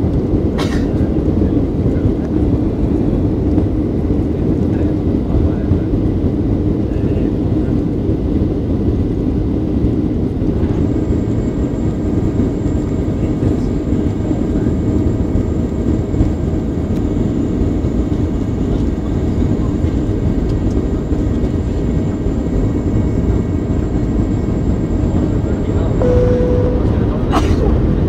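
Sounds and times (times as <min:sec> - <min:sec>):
jet engine and airflow rumble: 0:00.0 - 0:28.0
faint whining tones: 0:26.0 - 0:27.4.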